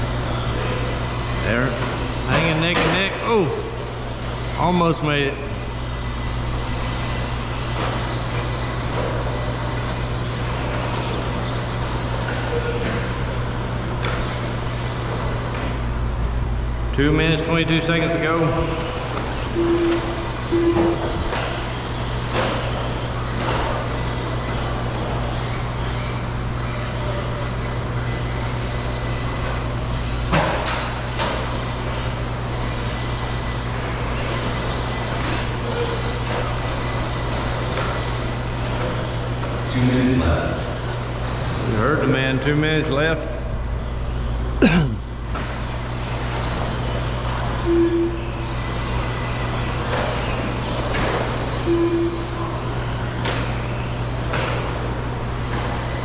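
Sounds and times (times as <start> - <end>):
electric rc trucks racing: 0.0 - 44.6, 45.2 - 56.0
constant hum: 0.0 - 56.0
toy truck motors and tyres: 6.3 - 15.5, 21.3 - 29.4, 48.4 - 56.0
short beep: 19.6 - 21.1, 47.6 - 48.3, 51.7 - 52.4.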